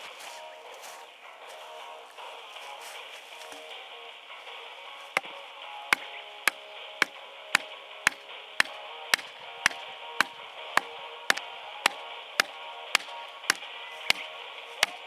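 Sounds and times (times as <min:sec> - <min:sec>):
wood being chopped: 0:05.1 - 0:15.0.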